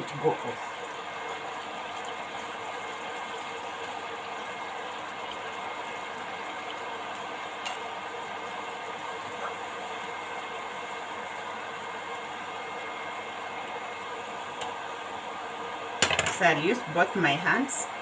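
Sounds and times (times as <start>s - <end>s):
blender running: 8.1s - 18.0s.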